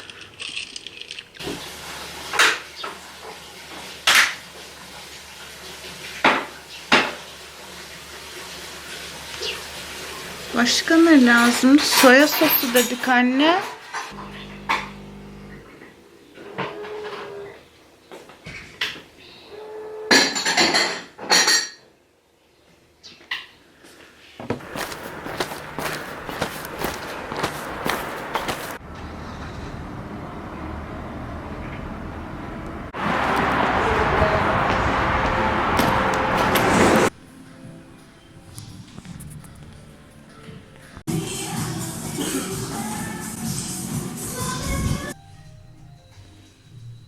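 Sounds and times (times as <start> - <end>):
dishes and utensils clinking: 11.3 - 14.2
shuffling noise with clicks: 24.6 - 28.8.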